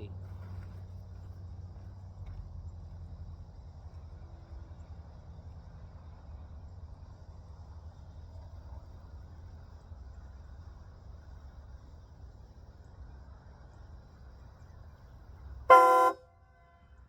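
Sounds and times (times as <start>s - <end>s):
low steady rumble: 0.0s - 17.0s
loud train horn blast: 15.7s - 16.2s.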